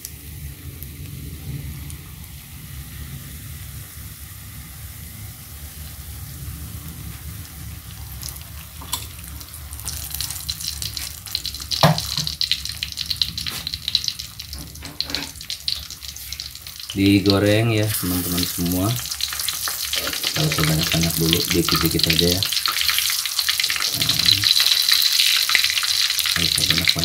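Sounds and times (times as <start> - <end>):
dough sizzling in oil: 0.0 - 27.0.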